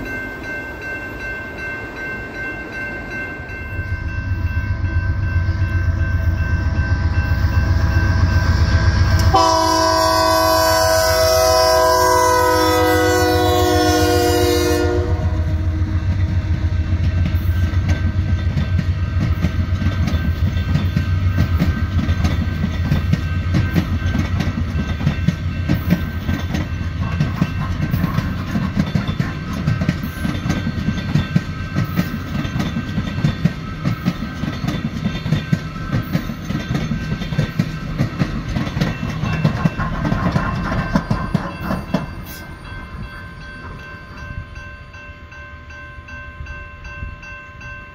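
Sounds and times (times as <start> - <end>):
diesel locomotive engine rumble: 0.0 - 45.8
train air horn chord: 9.2 - 16.0
train wheels clicking over rail joints: 15.6 - 43.8.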